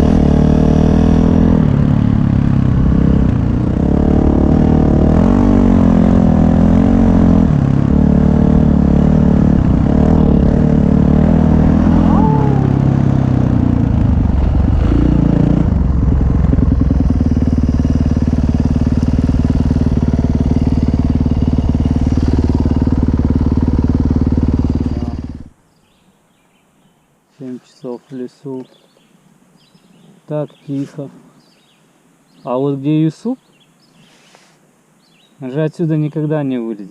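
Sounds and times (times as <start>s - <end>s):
dirt bike engine revving: 0.0s - 25.5s.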